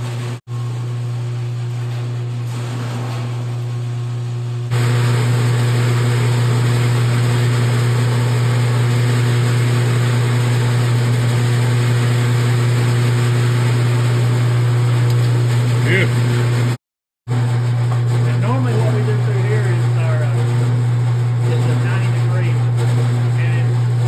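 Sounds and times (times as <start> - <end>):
roll-forming machine motor hum: 0.0 - 24.0.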